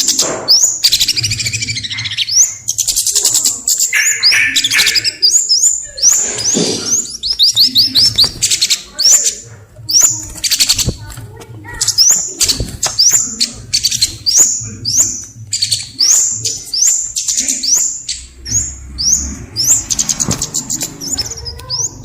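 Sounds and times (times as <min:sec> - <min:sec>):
buzzy bird trills: 0:00.0 - 0:11.0
songbird whistling: 0:03.9 - 0:08.1.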